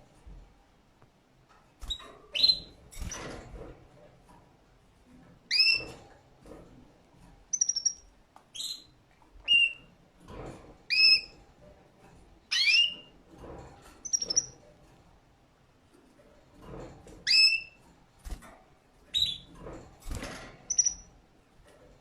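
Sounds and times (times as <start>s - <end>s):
canary chirping: 1.9s - 3.1s, 5.5s - 5.9s, 7.5s - 8.9s, 9.5s - 9.9s, 10.9s - 11.3s, 12.5s - 13.1s, 14.0s - 14.6s, 17.3s - 17.8s, 19.1s - 19.5s, 20.7s - 21.1s.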